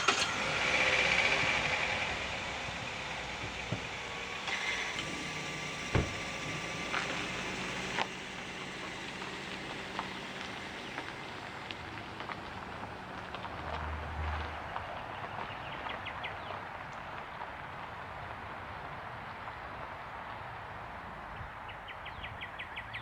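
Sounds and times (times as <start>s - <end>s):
car engine running: 0.0s - 13.7s.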